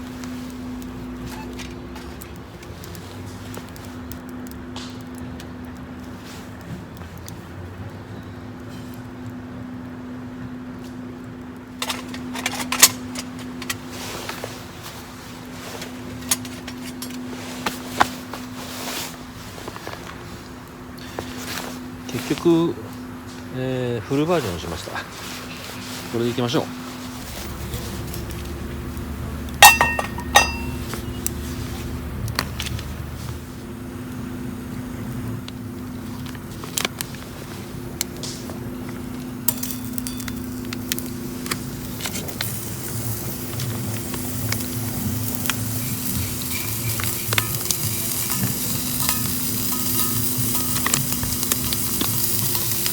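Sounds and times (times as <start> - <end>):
steady low hum: 0.0 - 52.9
metallic clinks of camping gear: 45.1 - 52.9.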